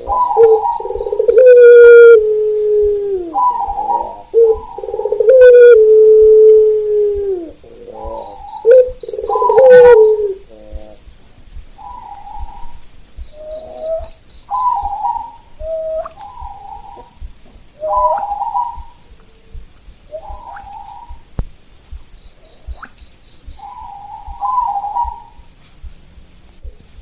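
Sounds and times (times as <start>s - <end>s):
doves cooing: 0.0s - 21.4s, 22.4s - 25.6s.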